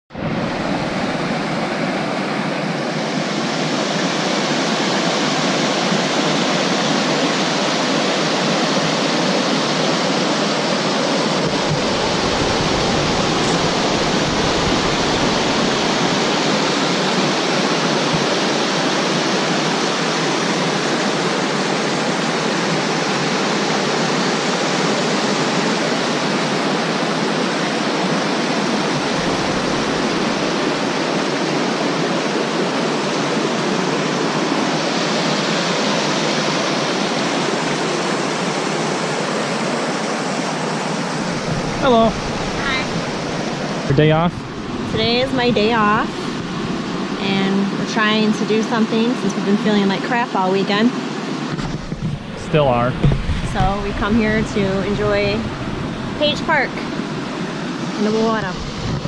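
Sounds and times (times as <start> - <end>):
water rushing: 0.1 - 59.0
low rumble: 11.4 - 16.3, 28.9 - 31.2, 41.2 - 47.3, 51.6 - 57.3.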